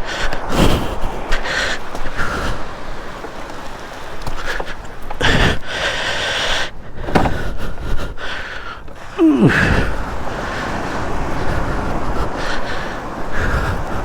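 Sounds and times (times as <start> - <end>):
moving vehicle noise: 0.0 - 14.0
wind buffeting microphone: 0.0 - 14.0.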